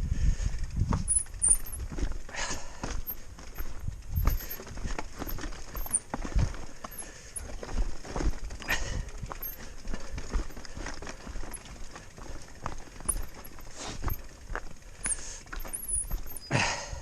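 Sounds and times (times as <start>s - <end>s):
bike clacking on rocks: 0.7s - 16.6s
footsteps on rocky trail: 0.8s - 16.8s.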